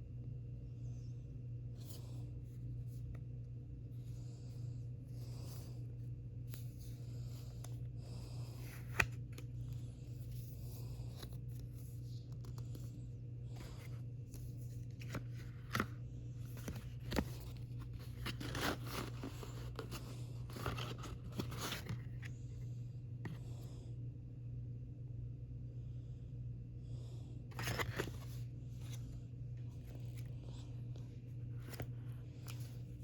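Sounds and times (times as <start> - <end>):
steady low hum: 0.0 - 33.0
packaging rustling: 16.5 - 22.3.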